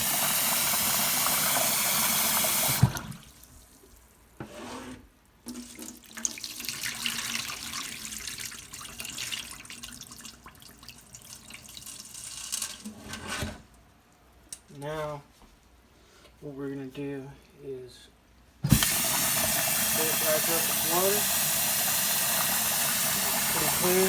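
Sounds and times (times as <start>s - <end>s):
tap water running into sink: 0.0s - 3.4s, 18.6s - 24.0s
tap shut off knock: 18.6s - 19.6s.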